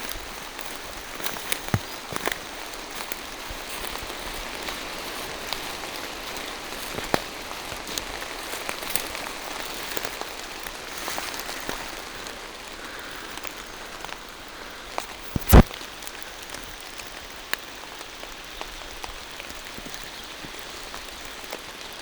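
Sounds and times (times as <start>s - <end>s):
rain falling through trees: 0.0s - 22.0s.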